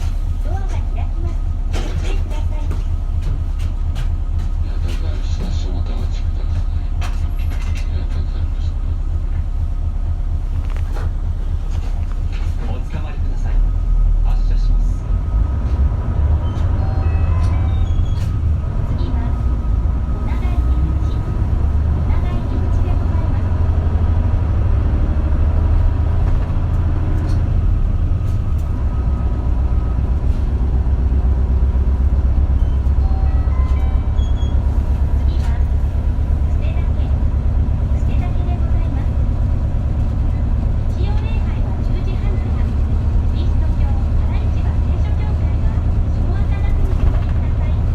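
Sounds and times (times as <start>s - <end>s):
bus engine drone: 0.0s - 47.9s
road noise: 0.0s - 47.9s
light rattles and clicks: 1.7s - 8.4s.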